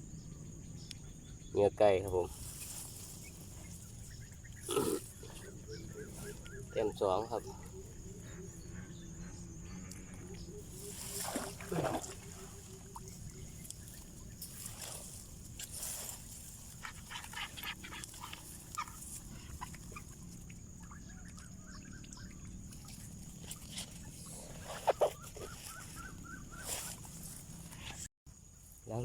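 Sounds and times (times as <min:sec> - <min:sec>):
rustling: 0:02.3 - 0:06.5, 0:10.6 - 0:20.1.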